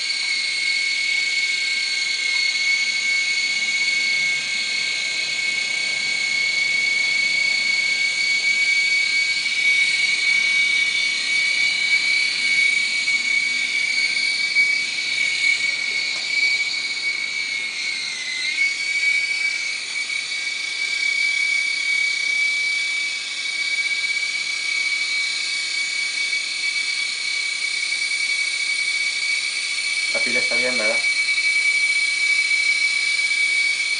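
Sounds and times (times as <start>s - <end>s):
toy helicopter motors whining: 0.0s - 33.9s.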